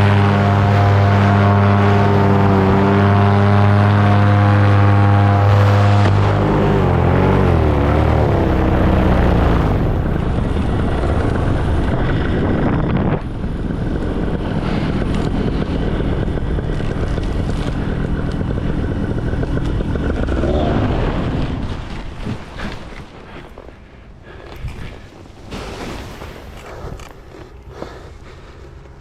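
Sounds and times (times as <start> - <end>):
wind on microphone: 0.0 - 23.6
paramotor engine and propeller: 0.0 - 29.0.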